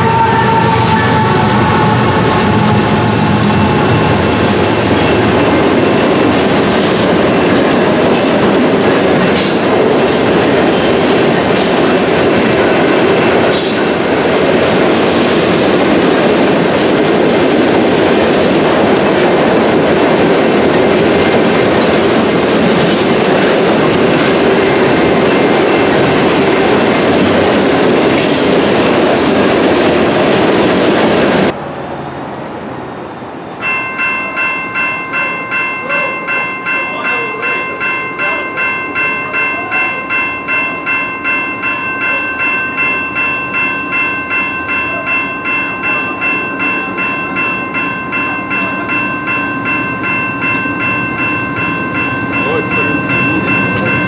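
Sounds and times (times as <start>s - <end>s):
locomotive horn chord: 0.0s - 4.7s
train wheels rumbling and clacking: 0.0s - 31.6s, 33.5s - 54.0s.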